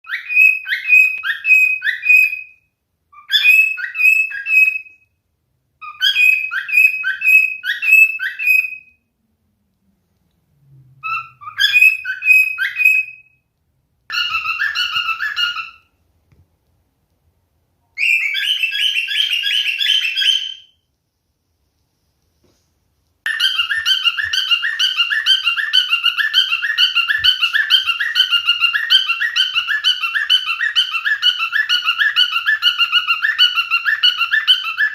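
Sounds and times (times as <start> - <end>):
cockatiel whistling: 0.0 - 5.1, 5.8 - 9.0, 11.0 - 13.4, 14.1 - 16.0, 18.0 - 20.8, 23.3 - 34.9.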